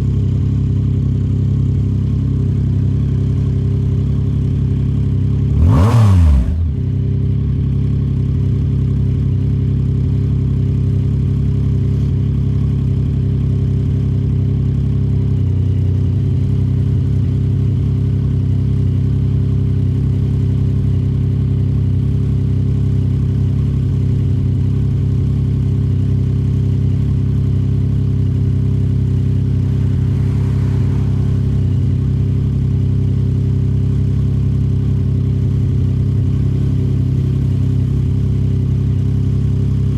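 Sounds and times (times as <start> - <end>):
motorcycle engine revving: 1.6 - 8.6, 15.2 - 39.9.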